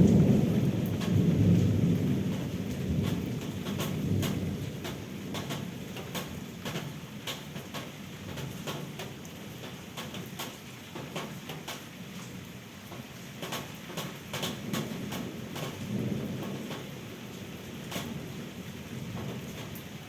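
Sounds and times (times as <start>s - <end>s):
thunder rumble: 0.0s - 6.3s, 14.6s - 20.0s
rain: 0.0s - 20.0s
raindrops ticking: 0.0s - 20.0s.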